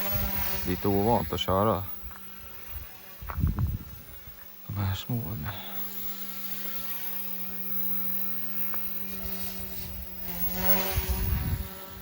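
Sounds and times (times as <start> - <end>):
rc helicopter motor buzzing: 0.0 - 12.0.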